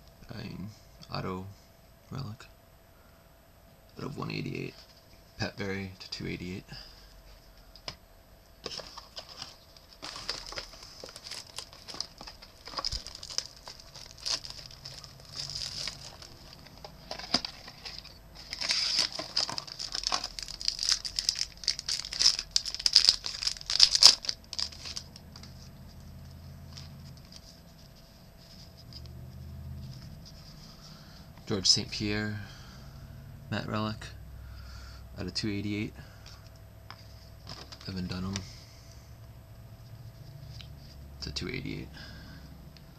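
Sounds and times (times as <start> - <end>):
wrapper crinkling and tearing: 8.6 - 28.9, 37.4 - 38.4
cards rustling and clicking: 8.6 - 30.8, 36.2 - 38.5.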